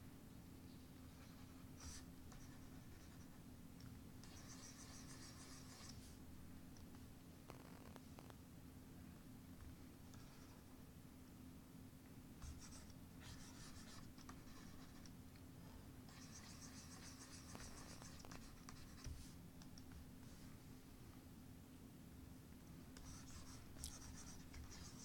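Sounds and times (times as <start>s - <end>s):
low steady hum: 0.0s - 25.0s
pencil scratching drawing strokes: 4.2s - 6.2s, 16.1s - 19.4s, 23.0s - 25.0s.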